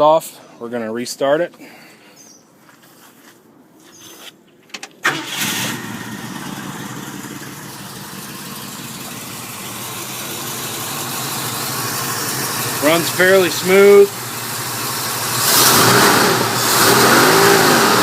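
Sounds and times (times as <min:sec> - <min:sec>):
car engine starting and idling: 0:04.7 - 0:18.0.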